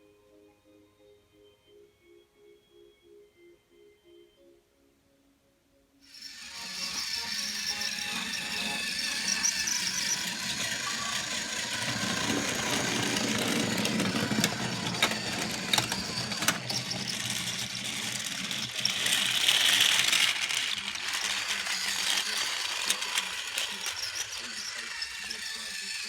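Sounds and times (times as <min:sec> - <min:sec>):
toy train clicking on track: 0:06.1 - 0:26.0
toy train motor whirring: 0:06.1 - 0:26.0.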